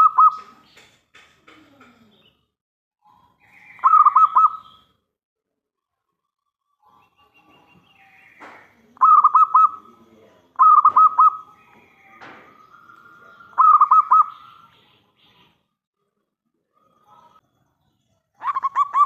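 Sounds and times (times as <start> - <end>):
dove cooing: 3.7 - 4.6, 9.0 - 10.0, 10.6 - 11.5, 13.2 - 14.7, 18.4 - 19.0.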